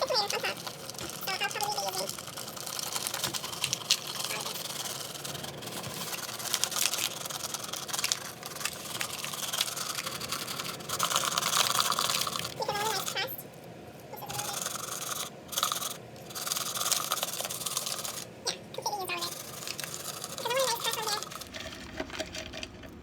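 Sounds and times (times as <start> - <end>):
fried onions rustling and crackling: 0.0 - 18.4, 19.0 - 23.0.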